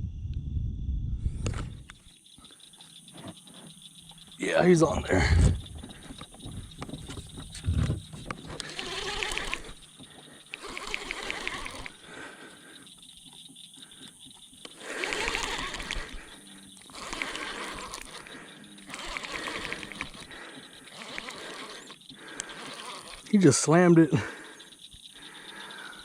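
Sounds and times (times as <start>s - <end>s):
fishing reel clicking: 8.2s - 12.1s, 14.6s - 23.8s.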